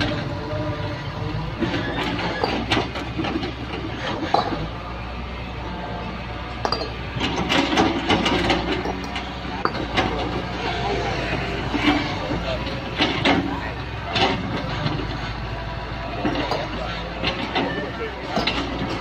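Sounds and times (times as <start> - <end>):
excavator diesel engine running: 0.0 - 19.0
metallic clanks and knocks: 1.5 - 4.8, 6.5 - 15.4, 16.1 - 19.0.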